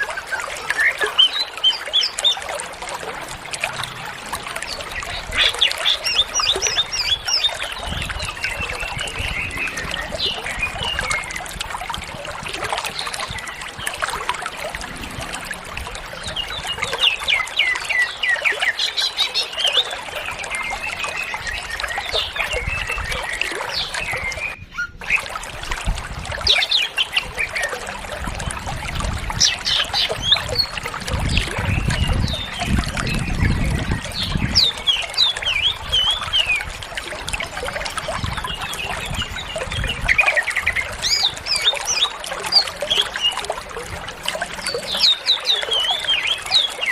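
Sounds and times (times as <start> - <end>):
bird singing fast chirps and trills: 0.0 - 2.7, 4.6 - 15.0, 29.2 - 43.6, 44.4 - 46.9
low rumble: 14.6 - 16.8.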